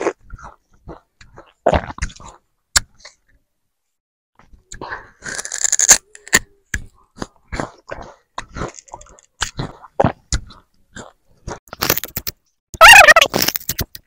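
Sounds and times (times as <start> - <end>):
crunching and chewing sugarcane: 0.0 - 2.5, 5.2 - 13.8.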